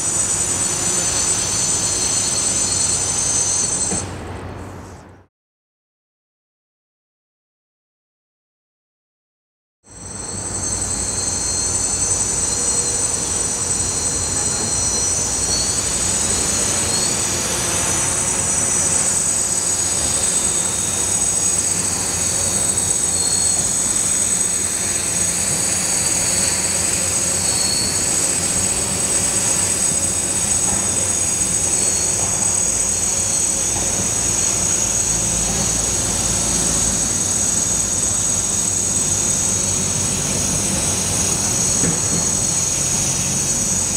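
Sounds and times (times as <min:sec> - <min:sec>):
drone propellers humming: 0:00.0 - 0:04.1, 0:10.0 - 0:43.9.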